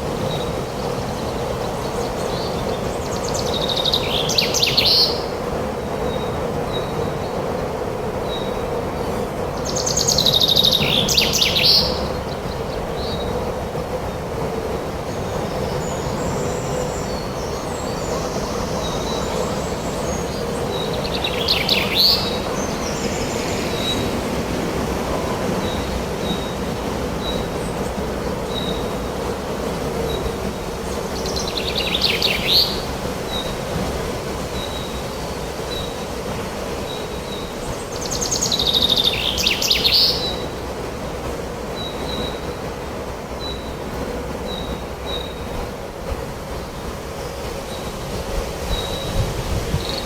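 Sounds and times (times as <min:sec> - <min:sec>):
wind: 0:00.0 - 0:50.0
birds singing and chirping: 0:09.6 - 0:13.4, 0:15.1 - 0:28.9, 0:31.0 - 0:33.5.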